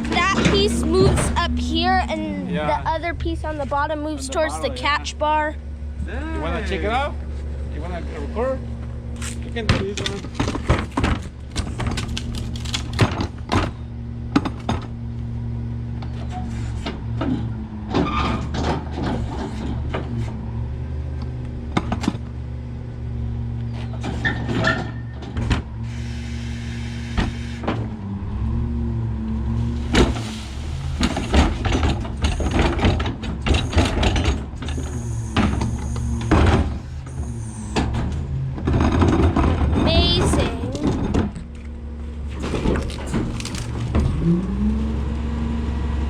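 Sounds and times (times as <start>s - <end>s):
garbage truck engine droning: 0.0s - 46.0s
hydraulics whining: 0.0s - 46.0s
trash crushing with cracks: 9.5s - 13.8s, 29.8s - 34.6s, 42.2s - 44.4s.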